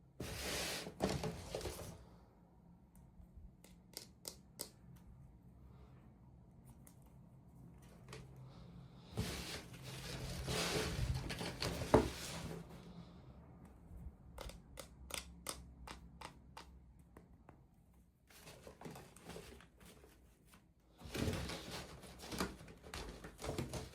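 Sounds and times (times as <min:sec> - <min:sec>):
small clicks and taps: 0:02.9 - 0:05.1, 0:14.3 - 0:17.7.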